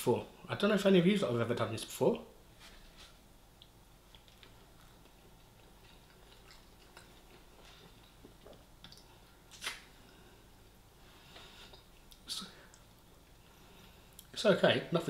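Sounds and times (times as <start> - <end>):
person chewing food: 3.6 - 10.2.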